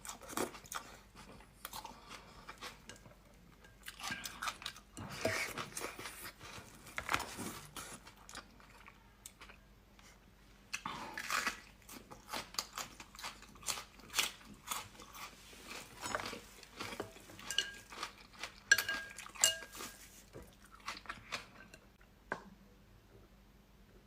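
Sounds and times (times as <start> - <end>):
chewing: 10.7 - 21.9
utensils clinking against a dish: 15.7 - 20.2.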